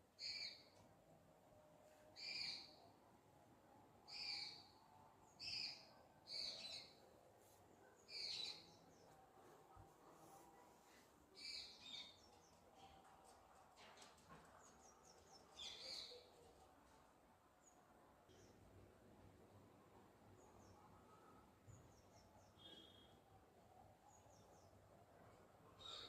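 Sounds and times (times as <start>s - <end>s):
bird short call: 22.6s - 23.2s.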